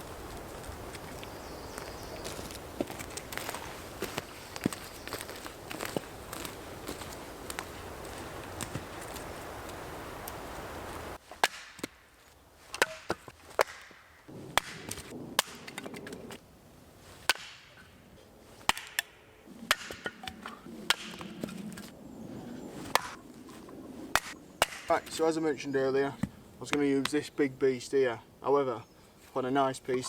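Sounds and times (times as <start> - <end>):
steady hiss: 5.4 - 11.2
wooden knocks and chops: 12.8 - 14.0, 17.3 - 17.7.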